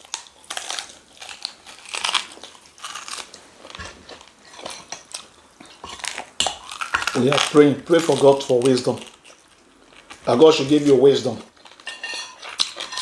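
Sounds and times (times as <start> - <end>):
biting and chewing food: 0.0 - 13.0.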